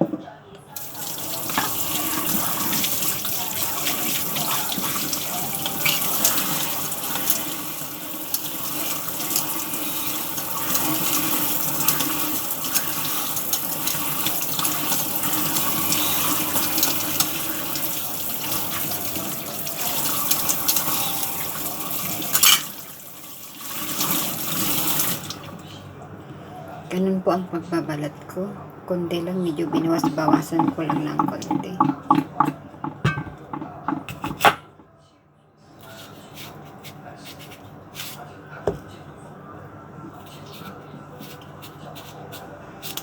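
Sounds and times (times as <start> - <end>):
tap running into sink: 0.8 - 5.2, 29.7 - 34.6.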